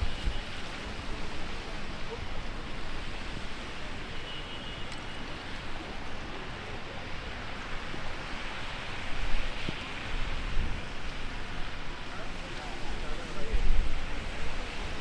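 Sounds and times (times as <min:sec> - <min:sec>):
heavy rain pouring: 0:00.0 - 0:15.0
wind buffeting microphone: 0:07.9 - 0:12.0.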